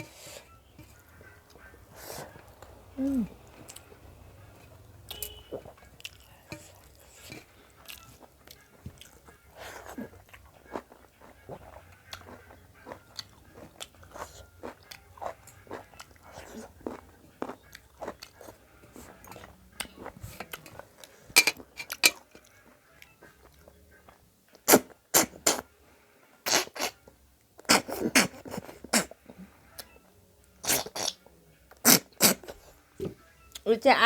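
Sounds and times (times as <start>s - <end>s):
loud slurping: 26.5s - 27.0s, 31.8s - 32.6s.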